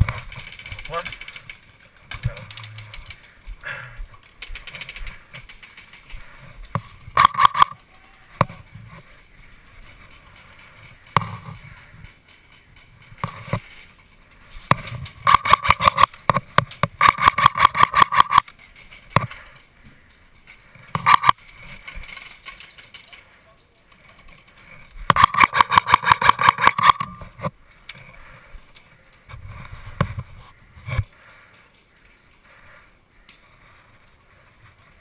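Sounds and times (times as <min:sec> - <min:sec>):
airsoft rifle bursts: 0:17.0 - 0:18.5, 0:25.1 - 0:27.2.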